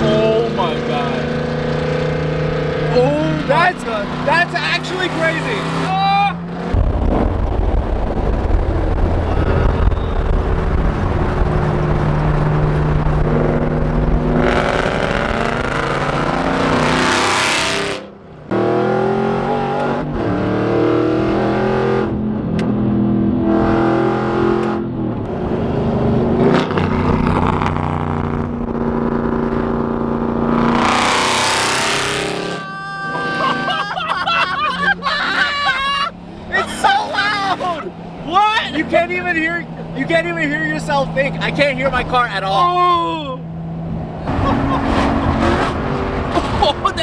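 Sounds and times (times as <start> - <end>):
loud car exhaust accelerating: 0.0 - 37.0, 43.4 - 47.0
rising rush: 0.2 - 17.8.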